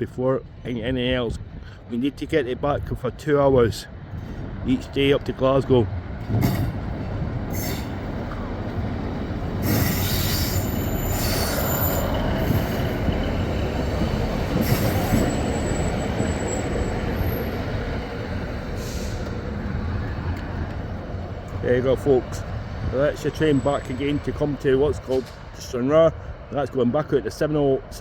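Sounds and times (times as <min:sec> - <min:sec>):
diesel train rumbling: 0:00.0 - 0:28.0
wheels squealing on rails: 0:06.3 - 0:20.0, 0:23.0 - 0:25.7.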